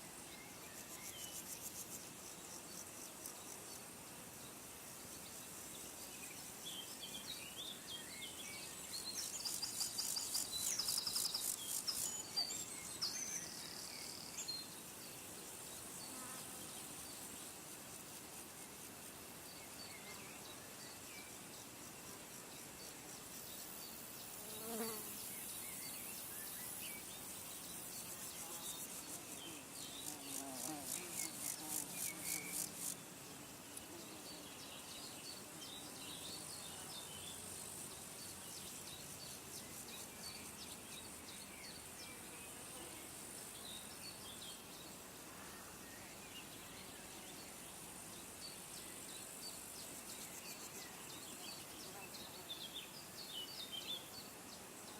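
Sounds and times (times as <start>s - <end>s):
insects buzzing and trilling: 0.0s - 54.9s.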